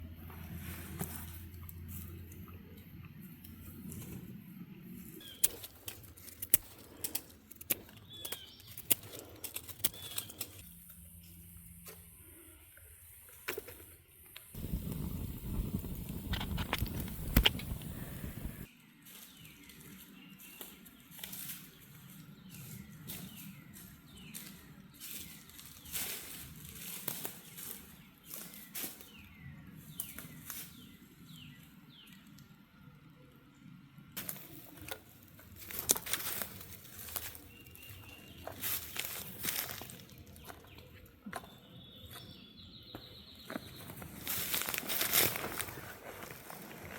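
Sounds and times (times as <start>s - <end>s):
rustling: 14.6s - 18.7s, 43.8s - 46.9s.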